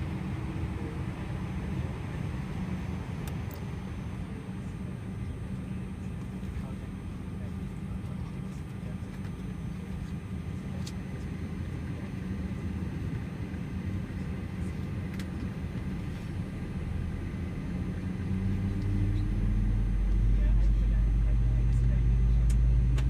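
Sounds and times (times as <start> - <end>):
aircraft cabin rumble: 0.0 - 23.0
deep rumble: 15.5 - 23.0.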